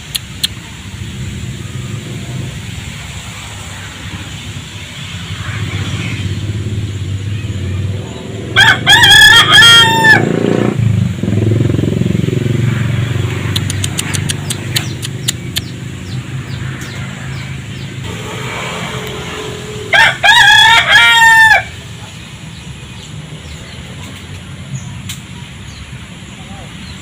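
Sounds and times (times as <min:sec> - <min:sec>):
low engine hum: 0:00.0 - 0:08.9, 0:09.7 - 0:20.3
rooster crowing: 0:08.5 - 0:10.4, 0:18.2 - 0:21.8
short sharp clicks: 0:13.5 - 0:15.7.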